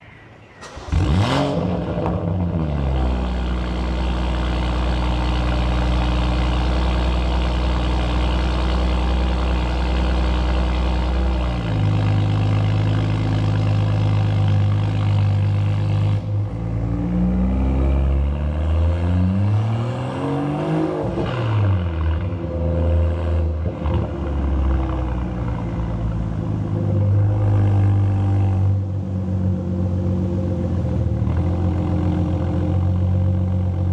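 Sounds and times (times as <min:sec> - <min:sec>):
car engine starting and idling: 0:00.4 - 0:17.5.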